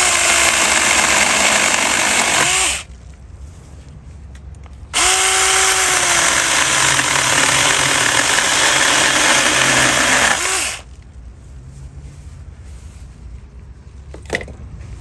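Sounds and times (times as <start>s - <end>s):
electric chainsaw cutting branch: 0.0s - 2.9s, 5.0s - 10.9s.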